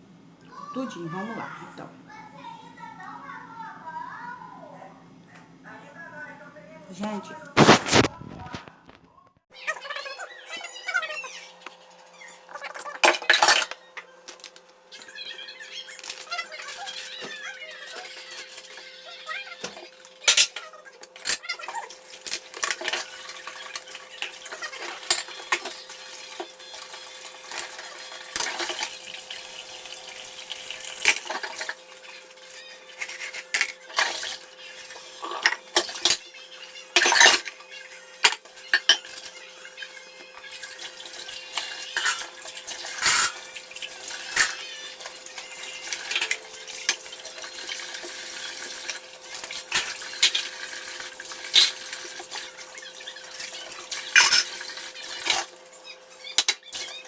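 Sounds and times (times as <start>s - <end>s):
water running: 9.6s - 57.0s
dishes and cutlery clattering: 12.6s - 13.9s, 19.6s - 57.0s.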